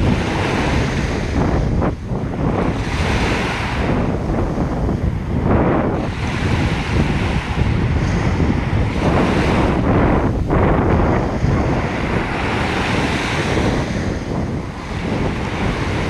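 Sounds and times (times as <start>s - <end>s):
ocean surf washing on beach: 0.0s - 16.0s
wind buffeting microphone: 0.0s - 16.0s.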